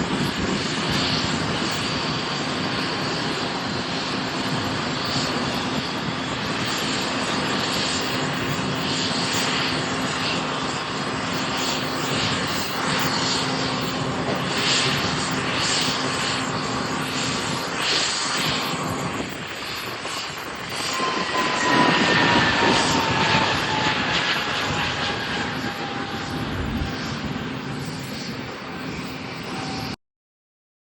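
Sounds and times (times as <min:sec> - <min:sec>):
airliner engines running: 0:00.0 - 0:30.0
engine whine sinking in pitch: 0:04.7 - 0:30.0.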